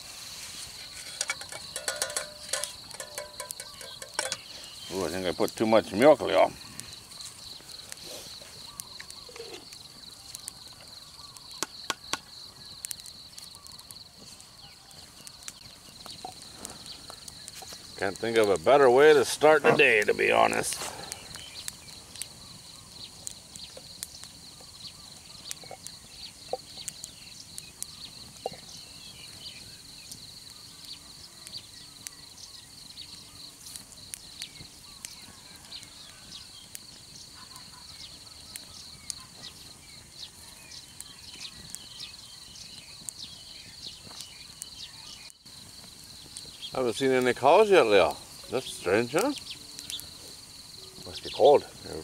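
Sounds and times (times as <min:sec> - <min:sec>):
insects chirring: 0:00.0 - 0:52.0
small clicks and ticks: 0:01.2 - 0:04.7, 0:08.6 - 0:18.7, 0:20.5 - 0:28.8, 0:33.0 - 0:37.2, 0:49.1 - 0:50.4.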